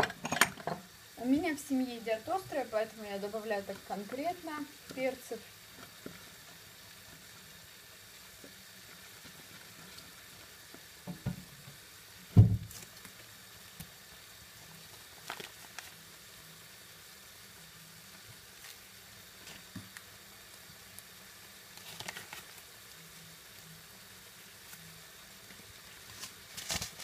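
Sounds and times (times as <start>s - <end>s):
food sizzling in a frying pan: 0.0s - 27.0s
loud dull thump: 12.4s - 12.7s.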